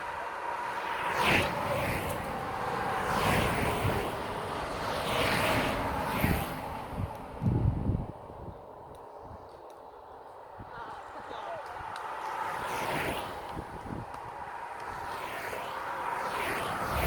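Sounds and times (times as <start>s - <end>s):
wind on phone microphone: 0.0s - 9.5s, 10.5s - 17.0s
bike road noise: 0.0s - 17.0s.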